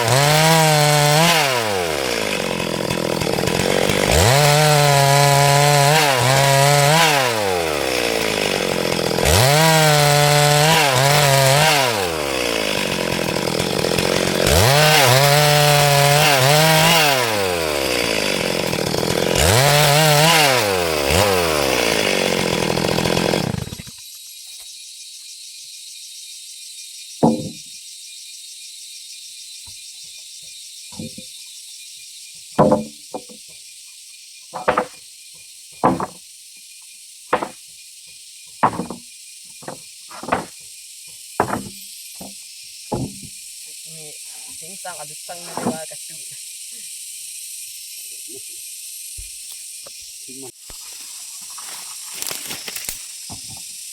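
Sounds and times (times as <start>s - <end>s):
chainsaw revving and cutting wood: 0.0s - 24.0s, 27.2s - 27.6s, 30.9s - 31.2s, 32.6s - 33.4s, 34.6s - 35.0s, 35.8s - 36.3s, 37.3s - 37.7s, 38.5s - 46.1s, 51.6s - 53.9s
short knocks: 27.2s - 27.6s, 30.9s - 31.3s, 32.6s - 33.4s, 34.6s - 35.0s, 35.8s - 36.2s, 37.3s - 37.6s, 38.6s - 39.0s, 39.6s - 40.6s, 41.4s - 43.3s.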